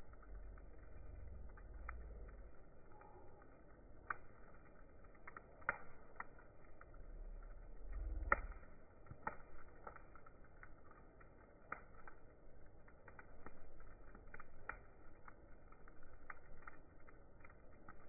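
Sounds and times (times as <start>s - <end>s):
short low rumble: 0.0s - 3.5s, 6.8s - 8.8s
faint clicks and ticks: 0.0s - 18.0s.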